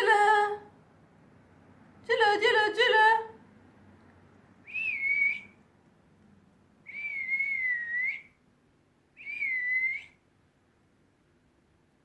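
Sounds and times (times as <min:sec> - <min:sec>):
long whistled notes: 0:04.6 - 0:05.6, 0:06.9 - 0:08.4, 0:09.2 - 0:10.2.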